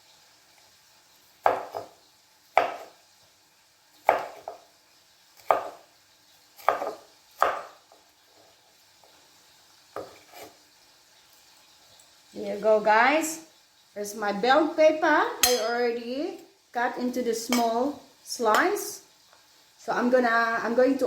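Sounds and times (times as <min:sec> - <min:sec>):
knife slicing a pepper: 0:01.4 - 0:03.1, 0:03.9 - 0:08.6, 0:09.9 - 0:10.6.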